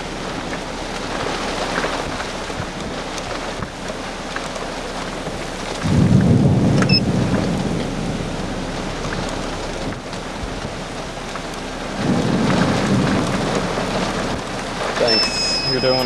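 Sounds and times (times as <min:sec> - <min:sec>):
steady rain: 0:00.0 - 0:16.0
thunder rumbling: 0:05.6 - 0:16.0.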